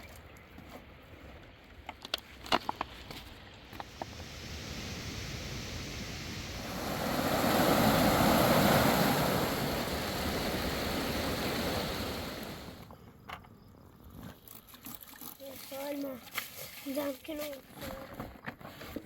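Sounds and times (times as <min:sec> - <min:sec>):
fast river rushing: 0:03.9 - 0:12.8.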